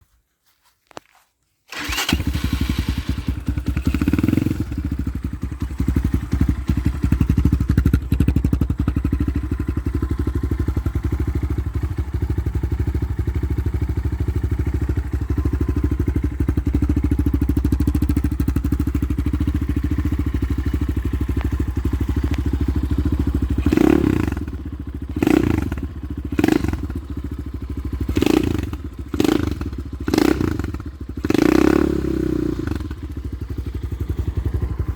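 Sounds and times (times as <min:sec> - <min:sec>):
engine revving: 0:01.7 - 0:05.0, 0:23.4 - 0:27.0, 0:28.1 - 0:33.0
motorcycle engine starting and idling: 0:01.7 - 0:34.9.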